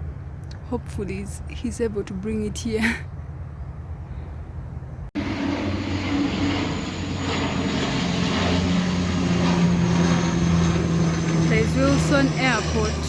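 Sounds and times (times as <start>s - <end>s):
airplane engine drone: 0.0s - 13.0s.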